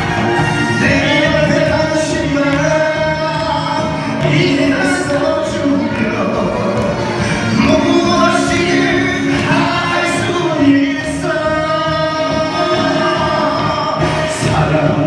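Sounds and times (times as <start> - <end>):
group singing: 0.0 - 15.0.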